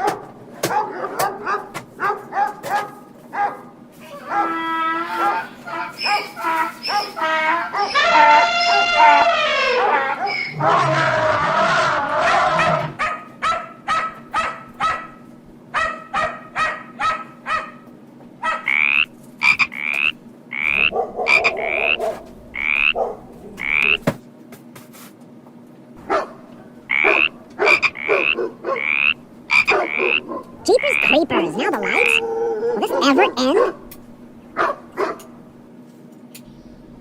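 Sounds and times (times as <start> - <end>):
short animal calls: 18.5 - 24.0.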